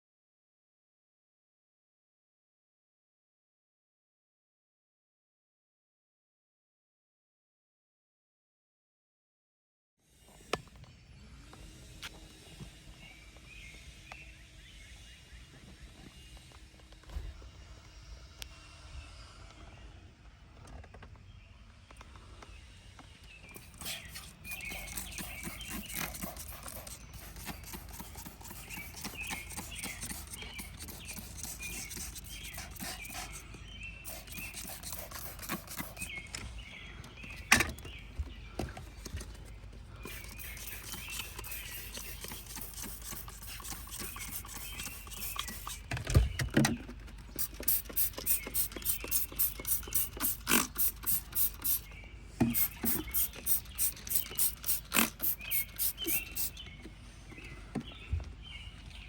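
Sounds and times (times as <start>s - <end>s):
hand scrubbing car interior: 23.6s - 33.5s, 34.1s - 36.2s, 40.1s - 45.8s.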